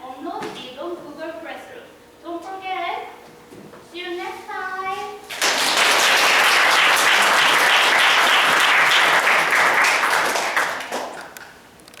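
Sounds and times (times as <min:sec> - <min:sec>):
audience applauding: 0:05.3 - 0:11.6.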